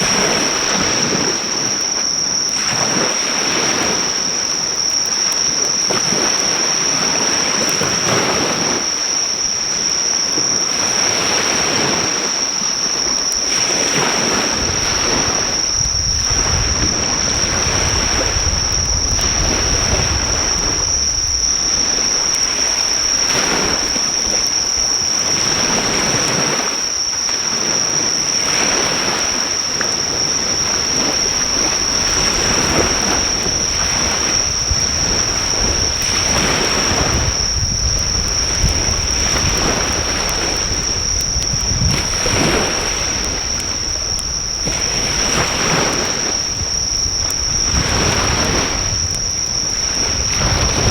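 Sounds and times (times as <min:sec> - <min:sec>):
insects droning: 0:00.0 - 0:50.9
ocean waves breaking on shore: 0:00.0 - 0:50.9
fire popping: 0:14.6 - 0:25.3, 0:30.1 - 0:45.4, 0:46.0 - 0:50.9.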